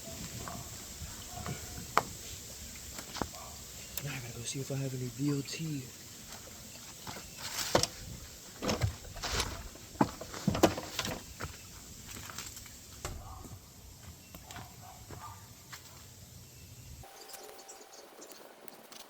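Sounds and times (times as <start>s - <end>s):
rustling: 5.2s - 13.5s
knocks and clunks of handling objects: 6.3s - 11.6s.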